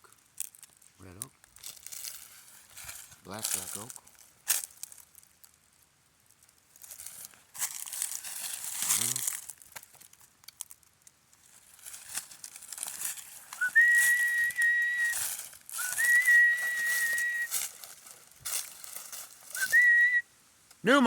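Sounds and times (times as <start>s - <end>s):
dry leaves crunching underfoot: 0.3s - 20.2s
person whistling: 13.6s - 15.2s, 15.8s - 17.5s, 19.6s - 20.2s.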